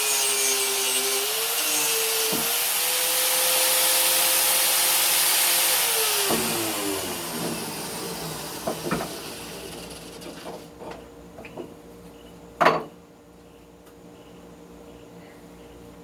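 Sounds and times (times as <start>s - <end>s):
wire brush motor winding down: 0.0s - 10.6s
tools knocking and clunking: 8.6s - 9.2s, 10.2s - 11.8s, 12.6s - 13.0s.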